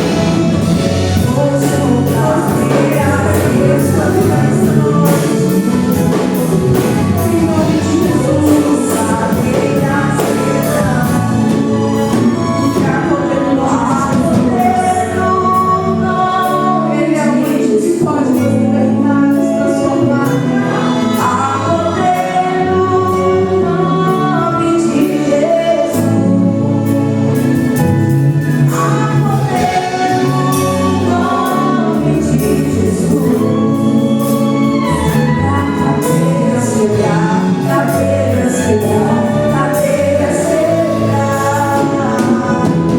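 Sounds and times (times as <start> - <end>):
steady drum beat: 0.0 - 16.6, 25.9 - 42.9
band playing: 0.0 - 42.9
voices singing gospel song: 0.0 - 42.9.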